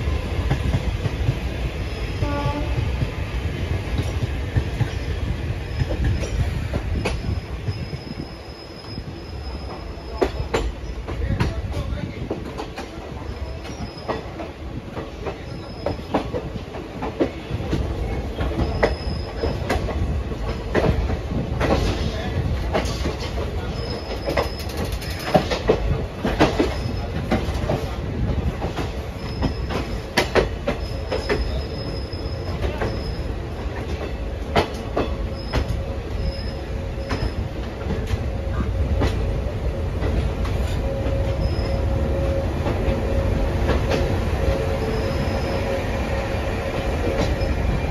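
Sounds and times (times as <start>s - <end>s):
train coach rumbling: 0.0s - 47.9s
faint high wheel squeals: 4.9s - 11.1s, 13.2s - 14.3s, 23.6s - 25.3s, 29.1s - 30.1s, 30.8s - 33.4s, 35.1s - 37.5s, 40.6s - 42.4s, 44.8s - 45.8s, 47.0s - 47.9s
wheels clicking over rail joints: 10.2s - 27.9s.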